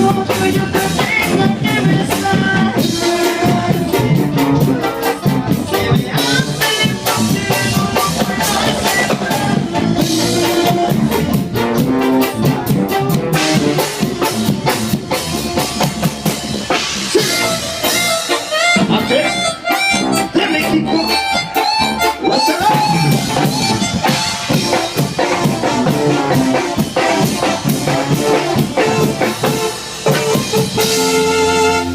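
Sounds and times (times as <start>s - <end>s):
accordion lead: 0.0s - 31.9s
cumbia band playing: 0.0s - 31.9s.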